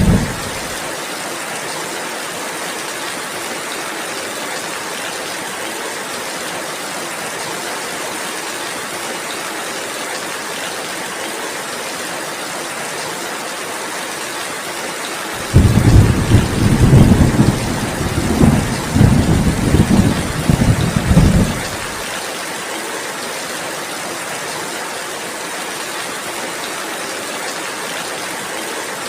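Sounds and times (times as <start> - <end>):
loud deep rumble: 0.0 - 0.7
steady rain: 0.0 - 29.0.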